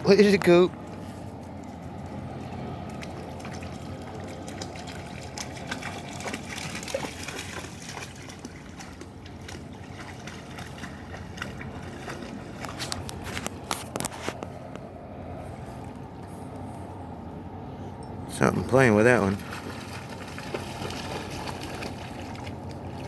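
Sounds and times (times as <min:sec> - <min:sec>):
water trickling and splashing: 0:00.4 - 0:14.4, 0:18.8 - 0:23.0.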